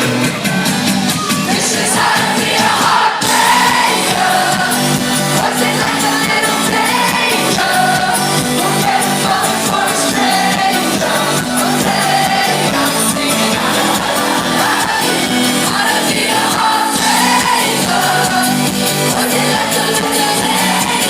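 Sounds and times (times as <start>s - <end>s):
live pop band with steady beat: 0.0s - 21.0s
woman singing: 5.4s - 21.0s.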